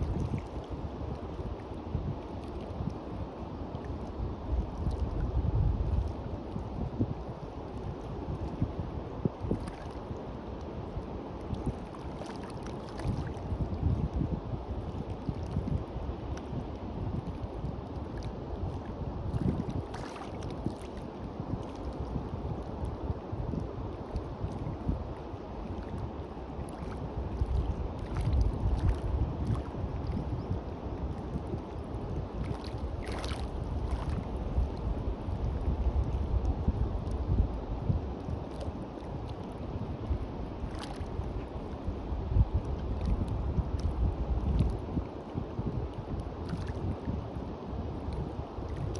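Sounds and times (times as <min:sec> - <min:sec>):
wind buffeting the microphone: 0:00.0 - 0:48.9
waves on the beach: 0:19.8 - 0:21.9, 0:31.6 - 0:36.4.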